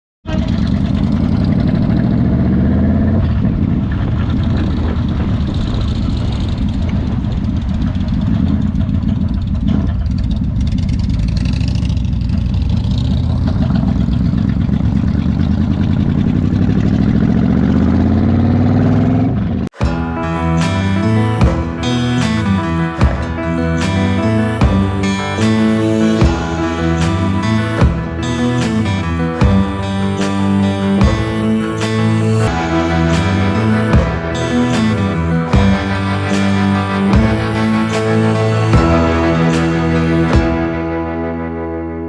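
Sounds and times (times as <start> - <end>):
motorcycle engine revving: 0.3 - 41.8.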